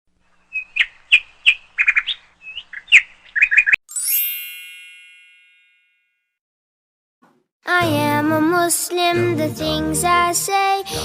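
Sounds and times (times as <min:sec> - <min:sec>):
bird chirping: 0:00.2 - 0:03.8
bright shimmering chime: 0:03.9 - 0:05.9.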